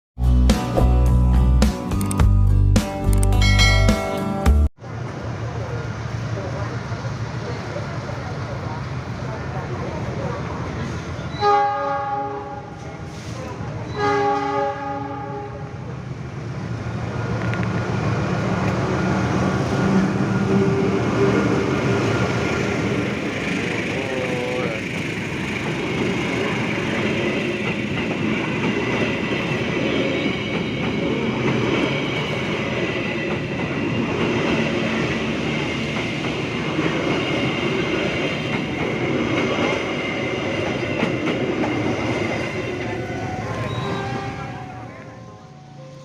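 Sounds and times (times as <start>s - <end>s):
train wheels clattering on rails: 17.2s - 44.2s.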